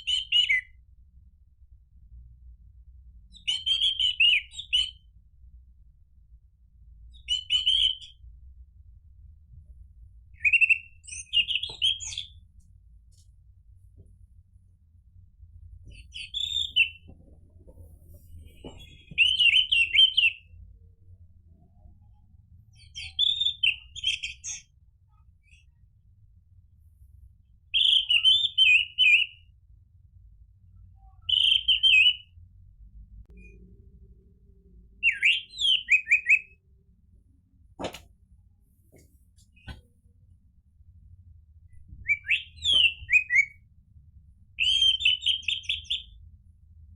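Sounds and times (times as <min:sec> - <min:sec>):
thrush singing whistled phrases: 0:16.2 - 0:17.0, 0:35.0 - 0:36.6, 0:42.1 - 0:43.6, 0:44.6 - 0:46.2.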